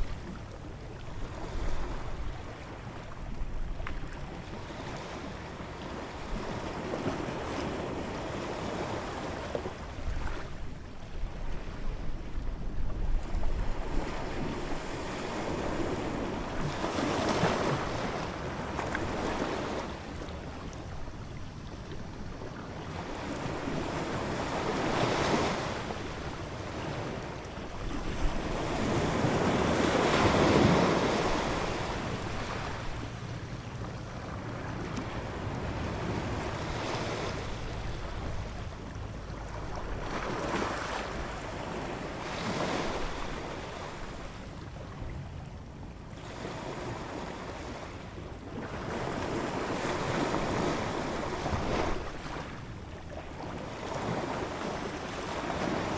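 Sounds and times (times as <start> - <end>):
waves breaking: 23.2 - 44.4, 48.6 - 55.9.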